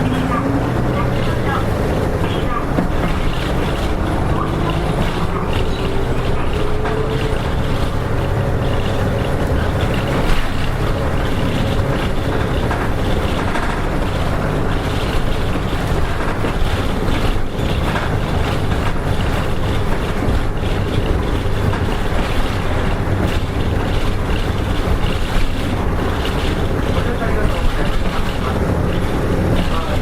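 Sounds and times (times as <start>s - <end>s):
bus diesel engine drone: 0.0s - 30.0s
road noise: 0.0s - 30.0s.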